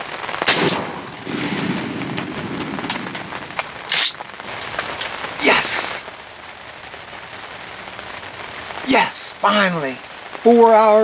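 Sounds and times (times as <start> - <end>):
rain pouring: 0.0 - 11.0
heavy drops splatting: 0.5 - 5.2.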